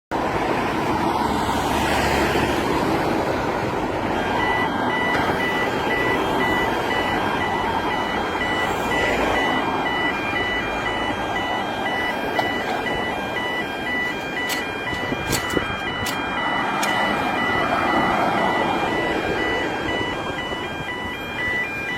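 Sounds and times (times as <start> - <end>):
steady background noise: 0.2 - 21.9
warning signal beeping: 3.7 - 21.9.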